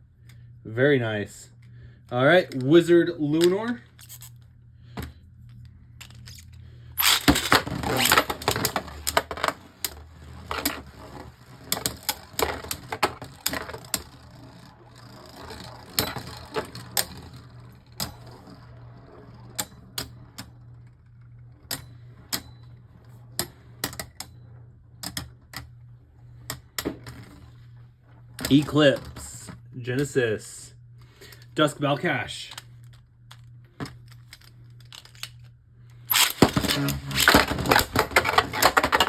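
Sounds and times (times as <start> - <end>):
faint low hum: 0.0 - 39.0
spinning tops clicking and knocking: 7.0 - 20.8, 36.1 - 39.0.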